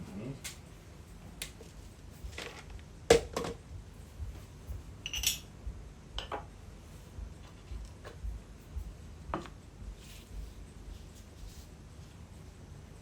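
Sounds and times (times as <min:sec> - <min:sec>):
dishes and cutlery clinking: 0:05.0 - 0:05.5.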